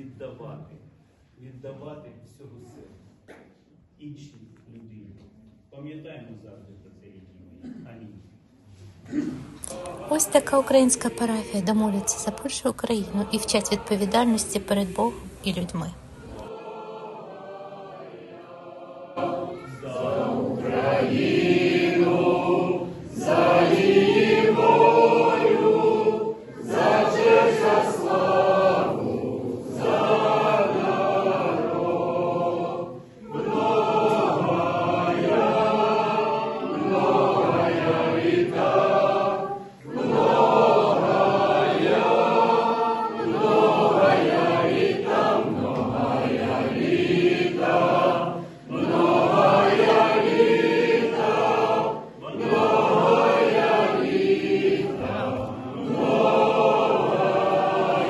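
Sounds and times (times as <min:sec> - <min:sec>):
choir singing a chant: 0:09.1 - 0:58.0
singers breathing: 0:39.6 - 0:39.9, 0:48.3 - 0:48.7.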